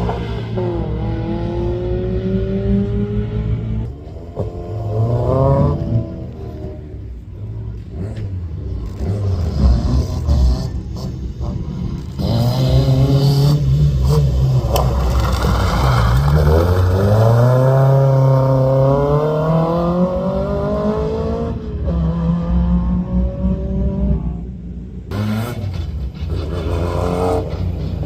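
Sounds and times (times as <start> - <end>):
rally car engine accelerating: 0.0 - 28.0.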